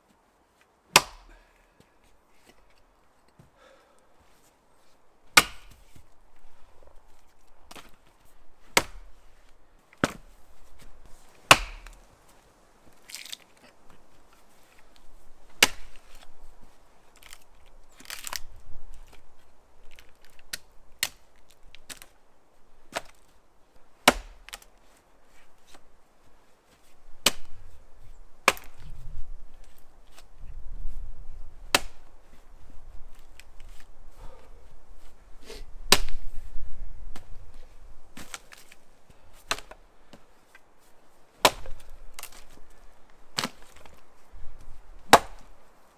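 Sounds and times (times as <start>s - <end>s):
axe chopping wood: 0.9s - 1.4s, 5.3s - 6.1s, 7.7s - 8.0s, 8.7s - 9.2s, 10.0s - 12.1s, 15.5s - 16.2s, 20.5s - 21.3s, 22.9s - 23.2s, 24.0s - 24.7s, 27.2s - 27.8s, 28.4s - 30.2s, 31.6s - 32.4s, 35.9s - 36.3s, 38.2s - 40.2s, 41.4s - 42.6s, 43.4s - 44.0s, 44.6s - 45.6s.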